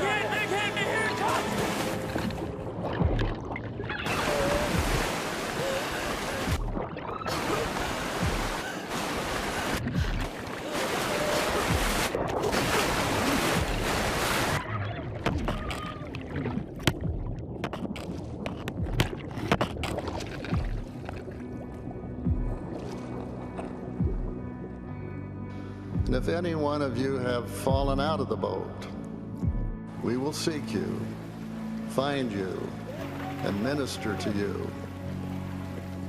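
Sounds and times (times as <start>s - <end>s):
whitewater rushing against raft: 0.0s - 2.5s, 4.0s - 6.6s, 7.3s - 14.7s
sharp water splashes: 0.0s - 21.6s
soft background music beat: 1.1s - 3.7s, 18.6s - 36.0s.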